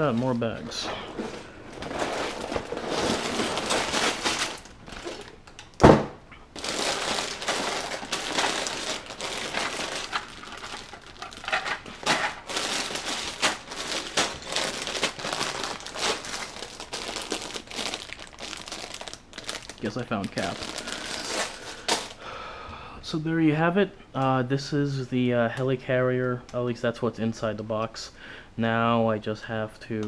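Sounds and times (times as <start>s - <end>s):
plastic bags crinkling: 0.0s - 5.8s, 6.5s - 22.2s.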